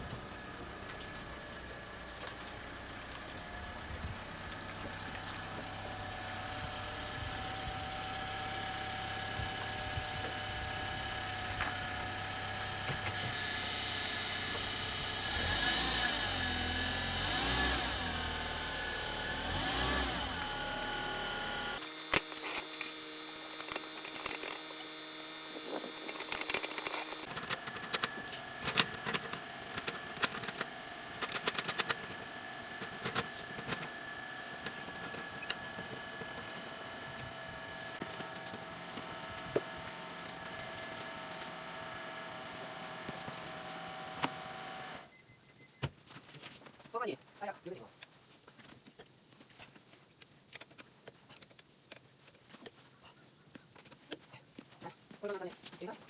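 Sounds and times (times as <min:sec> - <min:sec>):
car engine running: 0:00.0 - 0:45.0
small clicks and knocks: 0:21.8 - 0:34.0.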